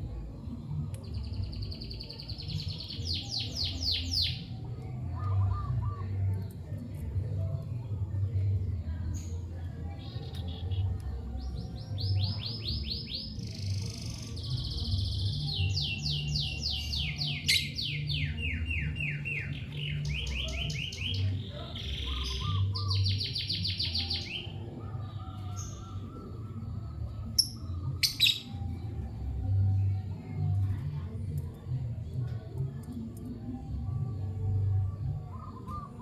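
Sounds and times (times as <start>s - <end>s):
bird singing fast trills: 9.1s - 29.9s.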